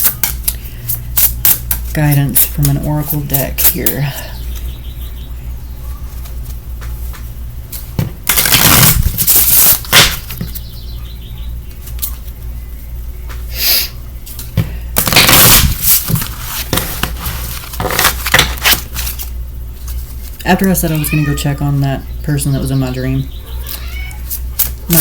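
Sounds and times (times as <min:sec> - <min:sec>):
cards shuffling: 0:06.1 - 0:10.6, 0:14.2 - 0:21.3.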